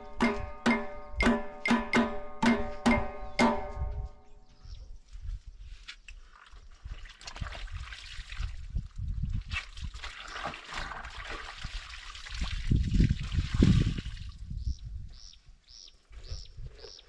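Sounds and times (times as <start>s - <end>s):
soft low thumps: 0.0s - 4.8s
water trickling and sloshing: 6.1s - 14.4s
small splashes: 6.2s - 14.3s.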